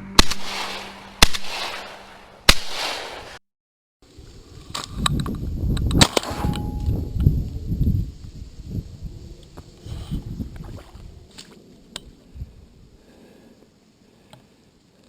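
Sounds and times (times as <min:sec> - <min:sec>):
shotgun shots: 0:00.1 - 0:03.4, 0:06.0 - 0:06.8
wind buffeting microphone: 0:04.1 - 0:13.2.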